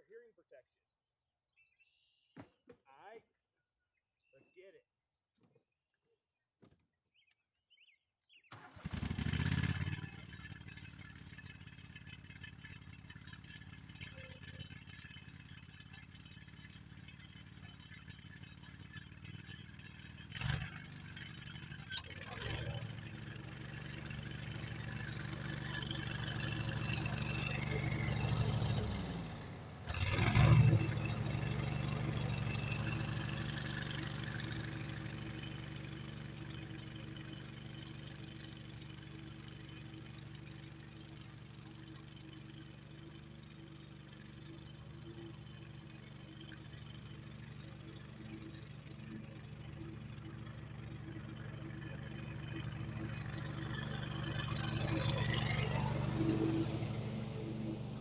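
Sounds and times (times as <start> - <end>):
riding lawnmower engine running: 8.6 - 58.0.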